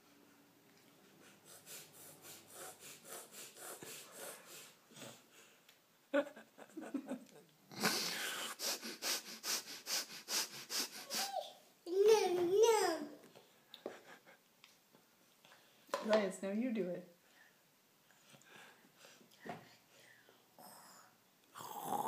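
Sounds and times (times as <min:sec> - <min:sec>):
person huffing and sniffing: 0:01.0 - 0:05.6, 0:07.7 - 0:11.6.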